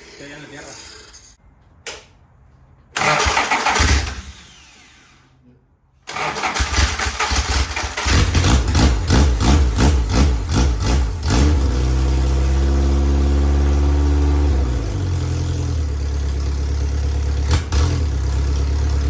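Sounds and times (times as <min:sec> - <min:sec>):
race car engine starting: 0:03.0 - 0:05.2, 0:06.0 - 0:19.0.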